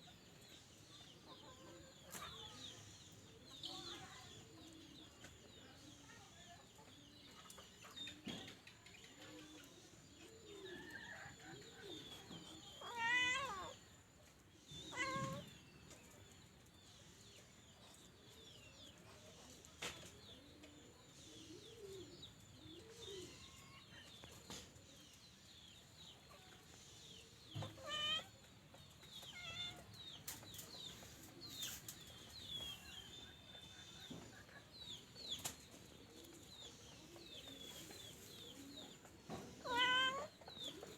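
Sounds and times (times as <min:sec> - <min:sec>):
cat meowing: 0:12.8 - 0:13.8, 0:14.9 - 0:15.5, 0:27.6 - 0:28.3, 0:29.3 - 0:29.9, 0:39.6 - 0:40.3.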